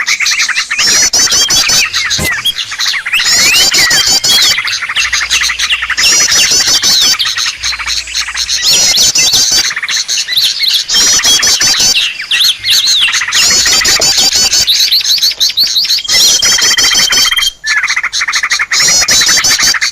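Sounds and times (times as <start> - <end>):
small songbirds chirping: 0.0 - 19.9
quick high bird trills: 0.8 - 8.7.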